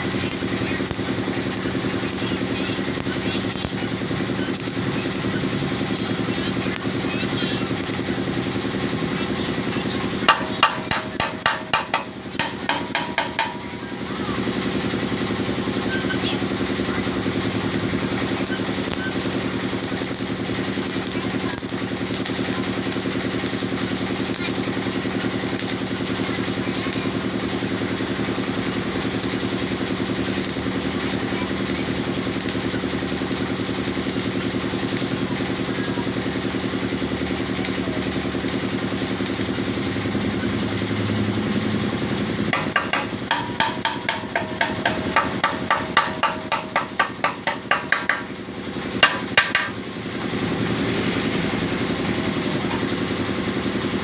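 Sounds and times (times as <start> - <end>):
irregular crackling: 0.0 - 8.2, 17.7 - 40.4
steady mechanical hum: 0.0 - 54.0.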